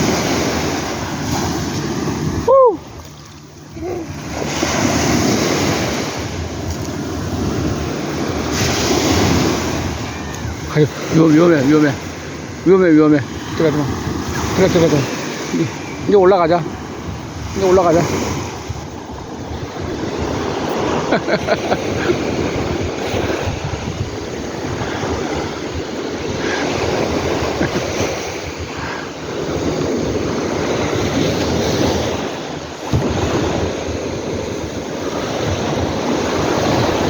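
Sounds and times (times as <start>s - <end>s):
sea waves breaking on beach: 0.0s - 37.0s
wind buffeting microphone: 0.0s - 37.0s.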